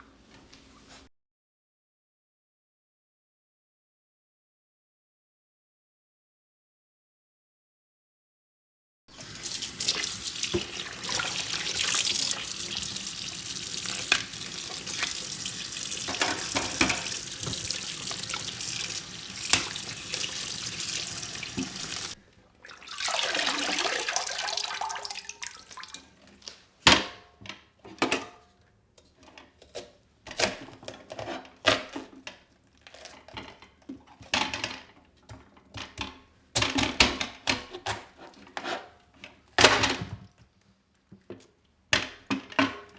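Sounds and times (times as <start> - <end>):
tap running into a sink: 9.1 - 26.6.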